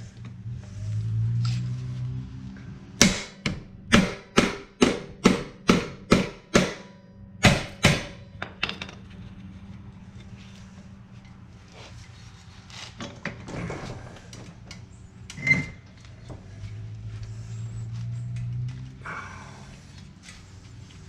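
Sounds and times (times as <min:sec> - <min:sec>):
hammer strikes: 0:03.0 - 0:09.0.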